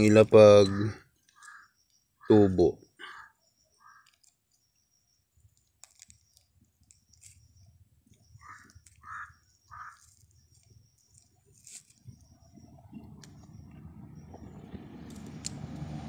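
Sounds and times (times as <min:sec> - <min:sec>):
bird harsh calls: 0:00.4 - 0:04.2, 0:08.4 - 0:10.3.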